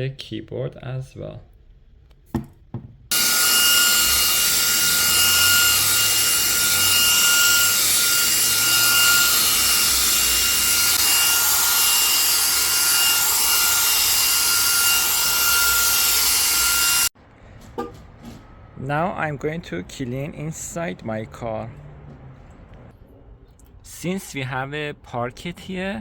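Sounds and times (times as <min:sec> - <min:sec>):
handheld vacuum motor whine: 0:03.1 - 0:17.2.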